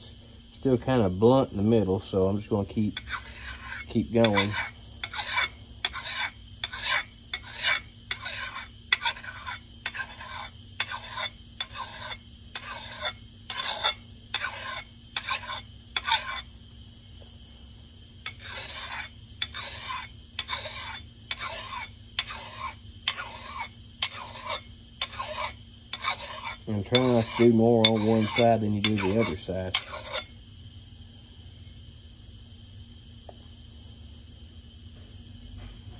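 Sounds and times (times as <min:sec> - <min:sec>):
axe sharpening rasps: 0:03.0 - 0:16.5, 0:18.2 - 0:30.3.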